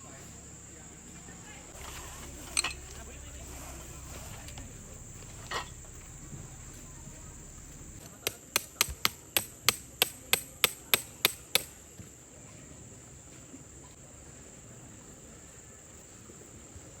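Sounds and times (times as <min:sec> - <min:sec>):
high insect drone: 0:00.0 - 0:13.3
hammer strikes: 0:01.8 - 0:11.7.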